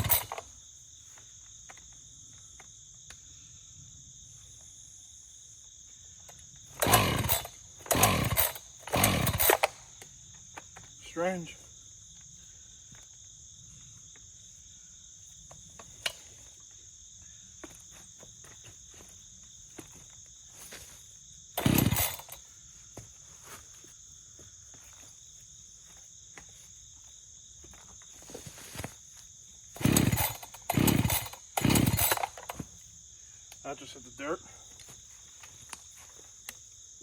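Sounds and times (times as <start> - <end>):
chainsaw pull-start bursts: 0.0 - 0.5, 6.7 - 9.9, 21.6 - 22.4, 29.7 - 32.7
crickets trilling: 0.0 - 37.0.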